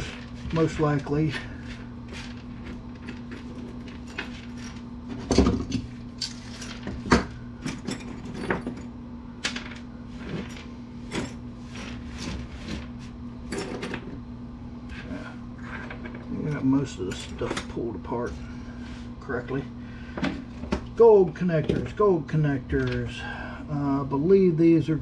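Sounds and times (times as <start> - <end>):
metal parts clinking: 2.2 - 11.4.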